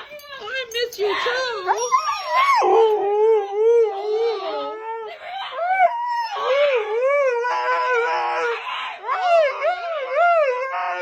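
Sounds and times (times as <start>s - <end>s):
dog whining and howling: 1.0s - 11.0s.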